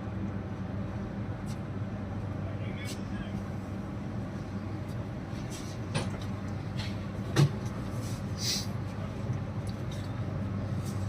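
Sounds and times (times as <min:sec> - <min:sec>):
train humming: 0:00.0 - 0:11.0
short hiss: 0:08.4 - 0:08.7.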